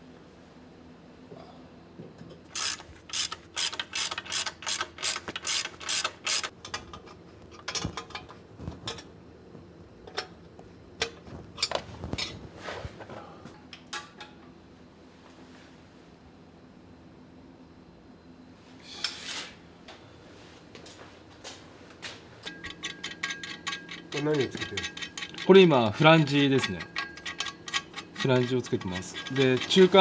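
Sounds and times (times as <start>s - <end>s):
ratchet wrench clicking: 2.5s - 6.6s, 26.5s - 30.0s.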